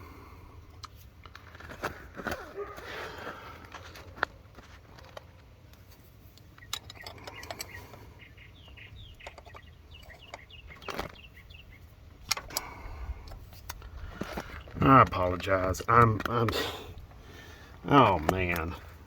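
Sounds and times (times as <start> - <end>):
small bird chirping: 6.4 - 12.0.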